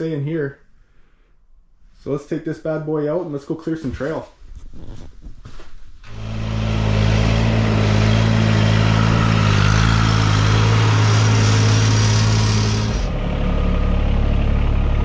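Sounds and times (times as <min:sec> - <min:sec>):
tractor engine running: 0:06.1 - 0:15.0.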